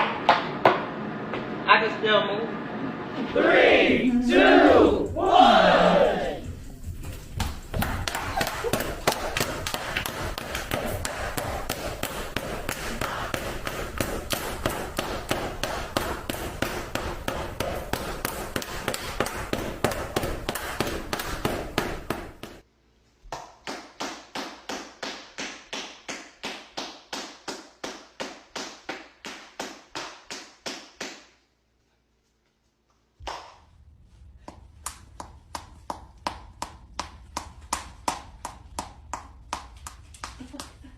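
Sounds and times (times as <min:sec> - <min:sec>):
noisy background: 0:00.0 - 0:22.6
buttocks slapping together: 0:07.3 - 0:22.6.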